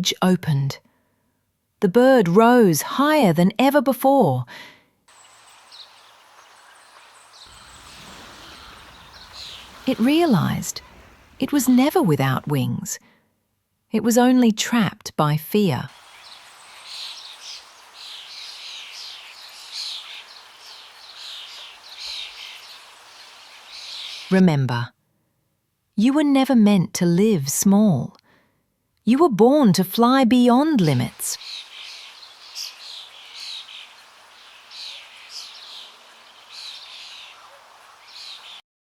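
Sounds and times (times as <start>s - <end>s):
faint steady hiss: 5.1s - 12.9s, 15.9s - 24.4s, 30.6s - 38.6s
songbirds chirping: 5.1s - 12.9s, 15.9s - 24.5s, 30.5s - 38.6s.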